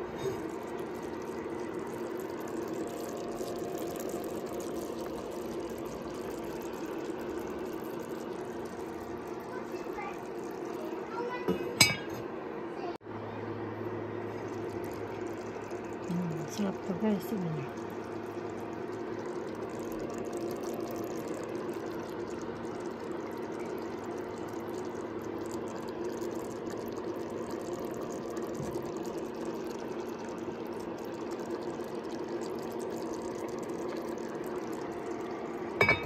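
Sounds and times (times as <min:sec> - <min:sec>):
pot simmering: 0:00.0 - 0:12.7, 0:13.5 - 0:36.0.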